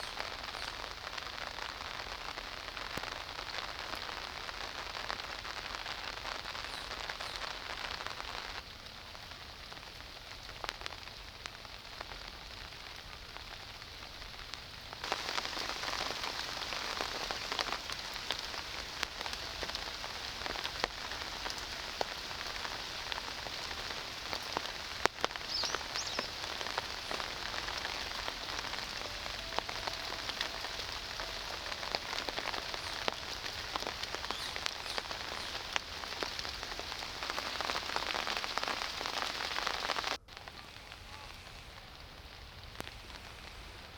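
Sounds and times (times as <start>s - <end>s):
rain falling: 0.0s - 43.9s
raindrop clicks: 9.7s - 43.9s.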